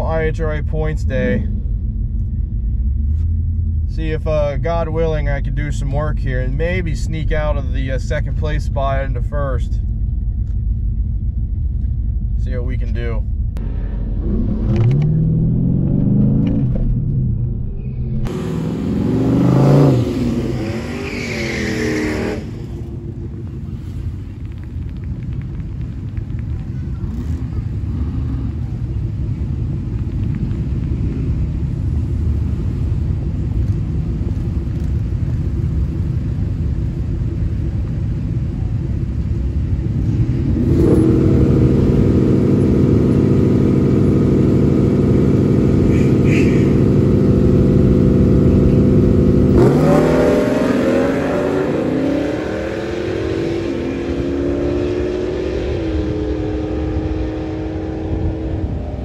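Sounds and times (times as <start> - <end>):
car engine revving: 12.4 - 24.4, 36.0 - 59.0.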